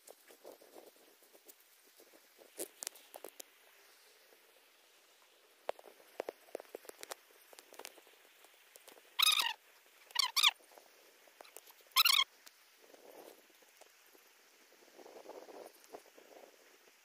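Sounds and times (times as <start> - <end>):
faint scattered ticks: 0.0 - 17.0
bird calling in squeaky notes: 9.2 - 10.6, 11.5 - 12.3.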